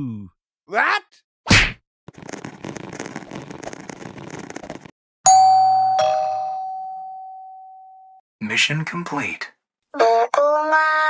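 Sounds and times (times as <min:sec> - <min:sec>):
two-note doorbell chime: 0:05.3 - 0:08.2.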